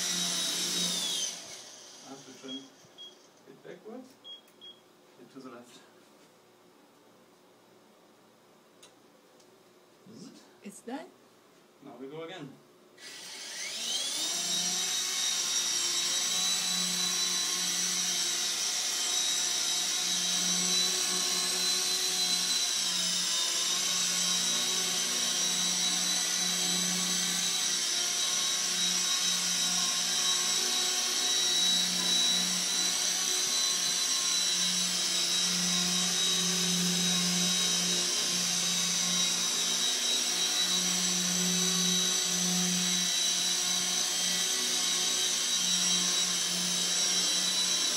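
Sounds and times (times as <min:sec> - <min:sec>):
rc helicopter motor whine: 0:13.0 - 0:47.9.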